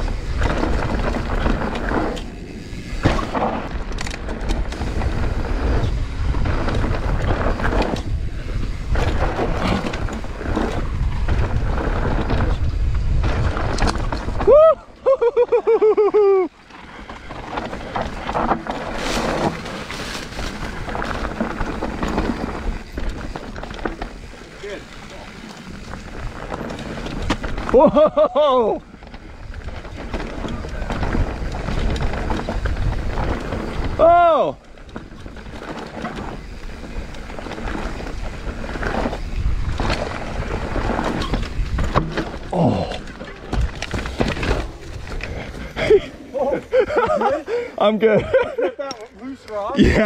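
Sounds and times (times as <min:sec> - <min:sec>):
wind rushing over microphone: 0:00.0 - 0:15.0, 0:28.8 - 0:34.1
bike rattling over bumps: 0:00.0 - 0:48.9
tyres on dirt: 0:00.0 - 0:50.0.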